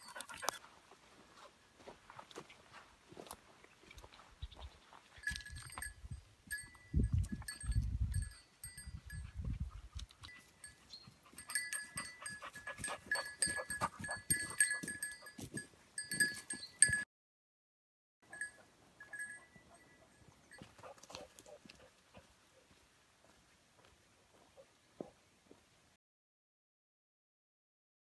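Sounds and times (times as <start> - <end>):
rapid clinks: 11.4 - 17.0, 18.3 - 20.7
steady ringing tones: 11.4 - 17.0, 18.3 - 20.7.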